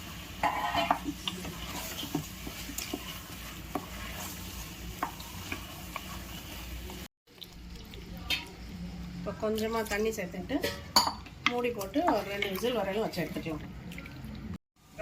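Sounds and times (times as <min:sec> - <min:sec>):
chicken sizzling in a pot: 0:00.0 - 0:10.5
utensil scraping metal pot: 0:00.4 - 0:06.6.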